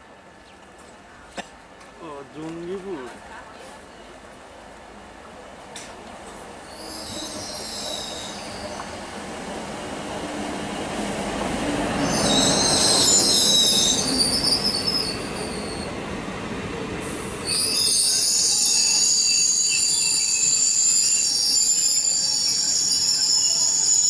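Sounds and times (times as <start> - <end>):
train engine rumble: 0.0 - 24.0
high-pitched wheel squeal: 6.7 - 8.8, 17.4 - 24.0.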